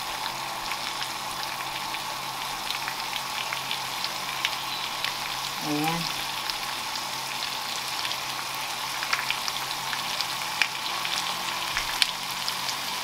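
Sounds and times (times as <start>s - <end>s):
chicken sizzling in a frying pan: 0.0s - 13.0s
small crackles and pops: 6.2s - 12.8s.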